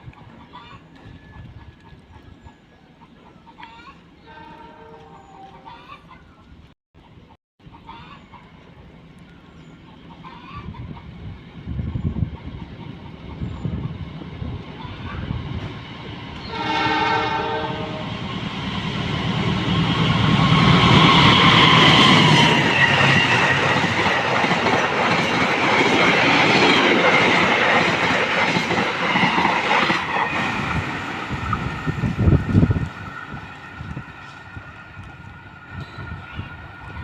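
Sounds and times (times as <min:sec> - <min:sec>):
train horn: 0:04.2 - 0:05.6, 0:16.4 - 0:18.2
train wheels clattering on rails: 0:19.8 - 0:37.0.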